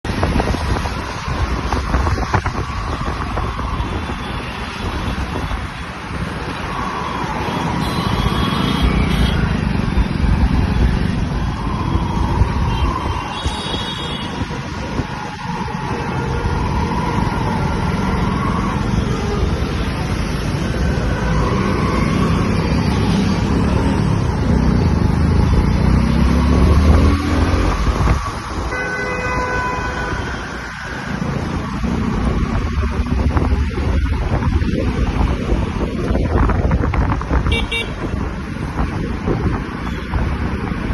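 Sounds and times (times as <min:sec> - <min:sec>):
road traffic: 0:00.0 - 0:40.9
wind noise on microphone: 0:00.0 - 0:40.9
vehicle horns honking: 0:28.7 - 0:30.4, 0:37.5 - 0:38.0.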